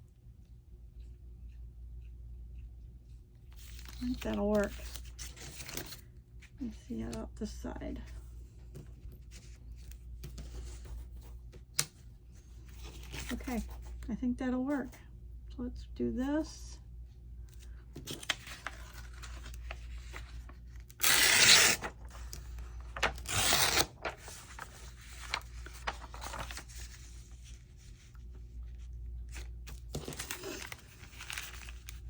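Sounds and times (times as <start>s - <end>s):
paper rustling: 3.5s - 6.6s, 18.0s - 32.0s
loud rasping paper strokes: 21.0s - 21.9s, 23.0s - 24.7s.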